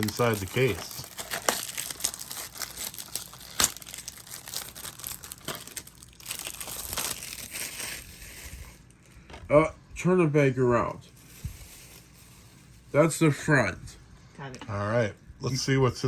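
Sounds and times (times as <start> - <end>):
sharp plastic crack: 0.0 - 7.7
plastic shrink-wrap crinkling: 0.0 - 9.2, 11.1 - 13.0.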